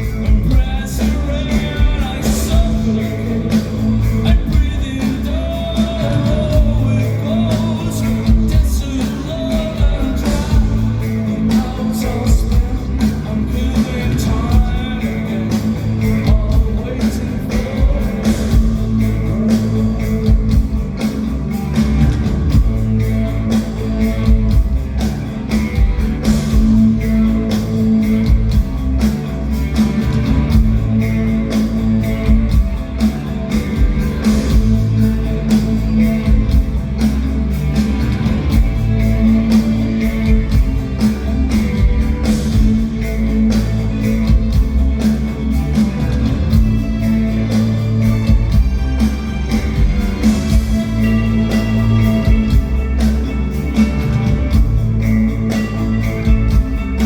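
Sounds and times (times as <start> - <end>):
droning bass and guitars: 0.0 - 57.0
drum beat: 20.0 - 57.0.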